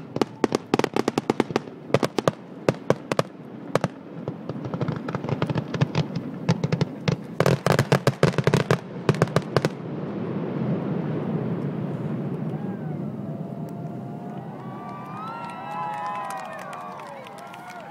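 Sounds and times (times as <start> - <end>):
fireworks popping and banging: 0.0 - 12.5.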